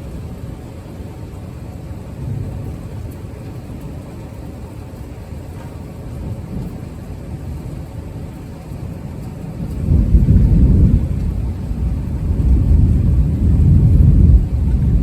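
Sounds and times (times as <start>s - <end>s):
distant thunder rumbling: 0.0s - 15.0s.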